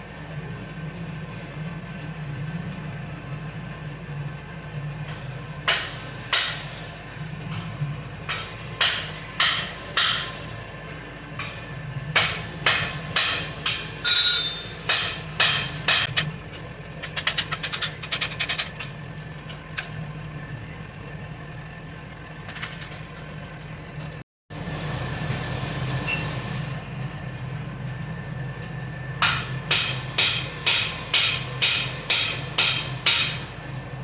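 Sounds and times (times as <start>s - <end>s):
hammer striking metal on anvil: 5.1s - 6.9s, 8.3s - 10.5s, 11.4s - 16.3s, 29.2s - 33.6s.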